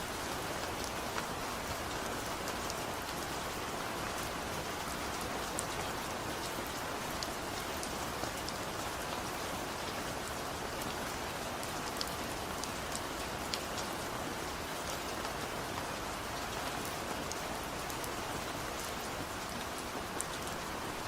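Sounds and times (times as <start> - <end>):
gentle rain falling: 0.0 - 21.0.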